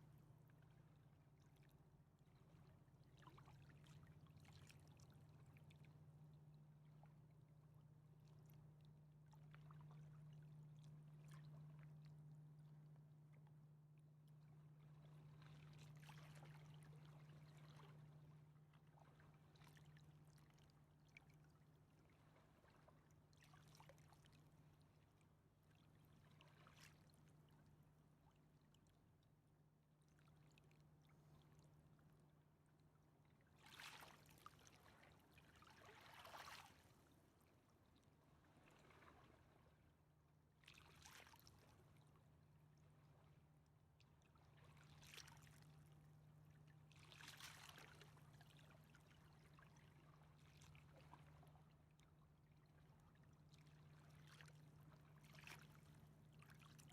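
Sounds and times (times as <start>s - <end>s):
river water lapping: 14.8s - 18.0s, 33.6s - 37.5s, 38.4s - 39.8s, 40.7s - 42.0s, 44.3s - 51.5s, 52.5s - 56.9s.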